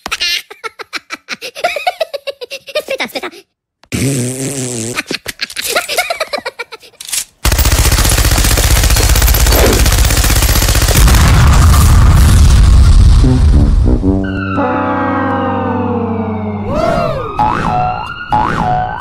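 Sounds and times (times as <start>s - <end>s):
cartoon voice babbling and giggling: 0.1s - 3.5s, 16.7s - 17.6s
machine-gun fire: 7.4s - 12.5s
explosion rumble: 11.0s - 14.2s.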